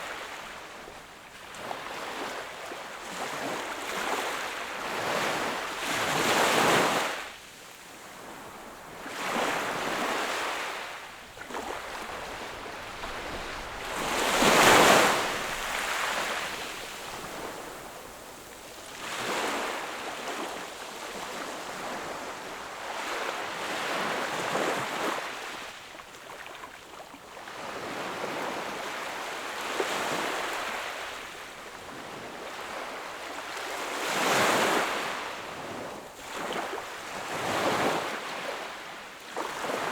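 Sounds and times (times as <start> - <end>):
sea waves breaking on shore: 8.0 - 25.8.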